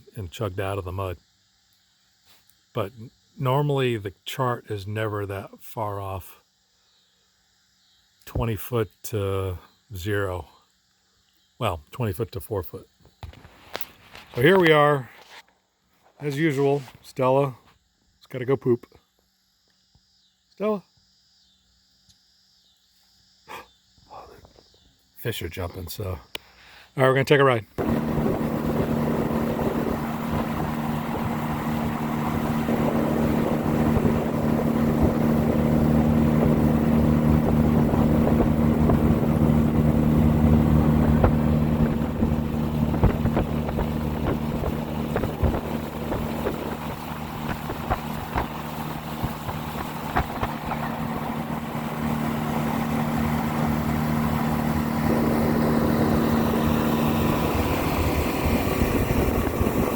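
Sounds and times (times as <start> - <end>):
boat motor running: 27.8 - 59.9
water noise: 27.8 - 59.9
wind noise on microphone: 27.8 - 59.9.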